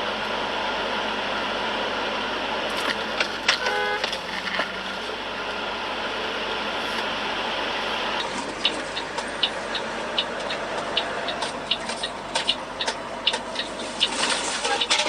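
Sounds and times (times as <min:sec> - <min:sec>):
quick uneven ticking: 0:08.2 - 0:14.2.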